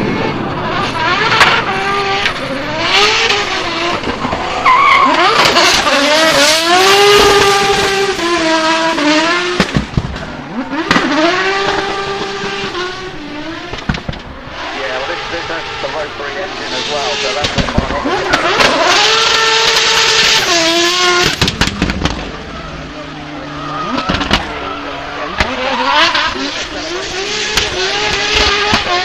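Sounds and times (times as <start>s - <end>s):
tyres squealing and skidding: 0.0s - 9.4s, 14.3s - 29.0s
car engine revving hard: 0.0s - 29.0s.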